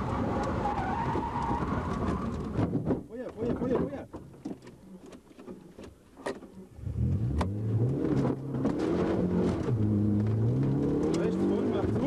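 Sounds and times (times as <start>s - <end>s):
rally car engine accelerating: 6.7s - 12.0s.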